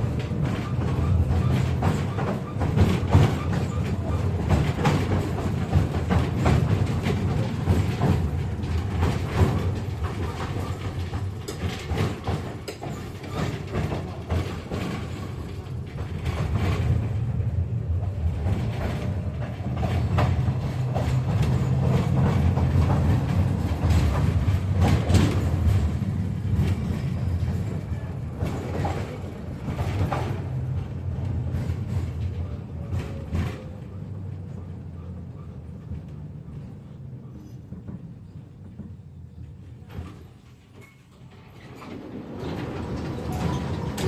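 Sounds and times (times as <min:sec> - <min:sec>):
clicks and knocks from rails: 0:00.0 - 0:17.1
tram running gear rumble: 0:00.0 - 0:44.0.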